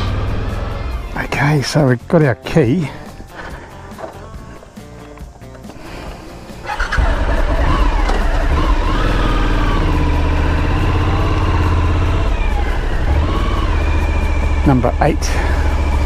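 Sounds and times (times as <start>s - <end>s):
motorcycle engine running: 0.0s - 1.2s, 6.2s - 16.0s.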